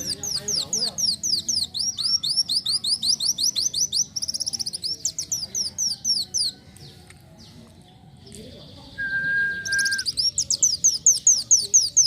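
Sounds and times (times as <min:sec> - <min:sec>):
bird singing high thin notes: 0:09.0 - 0:12.0.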